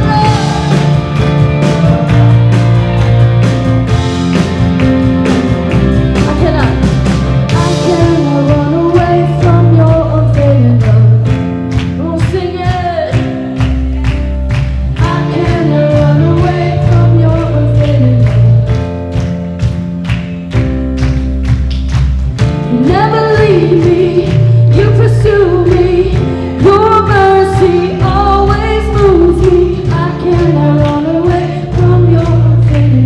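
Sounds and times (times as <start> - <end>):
person singing: 0.0 - 1.0
steady drum beat: 0.0 - 10.0
electric guitar: 0.0 - 33.0
worship band playing: 0.0 - 33.0.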